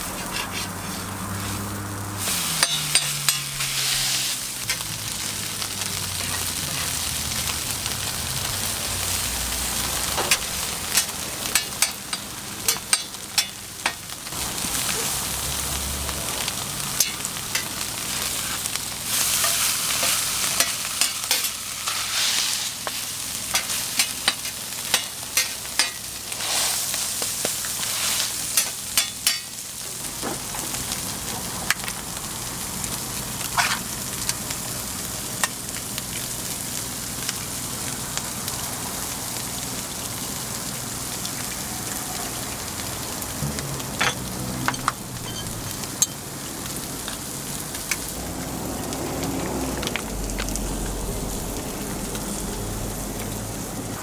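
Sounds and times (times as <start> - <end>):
metal spatula tapping and scraping: 0.0 - 1.1, 2.6 - 4.0, 10.1 - 14.0, 17.0 - 17.7, 19.4 - 22.0, 22.8 - 26.1, 28.6 - 29.5, 33.6 - 33.8, 43.9 - 46.2
food sizzling on a griddle: 0.0 - 54.0.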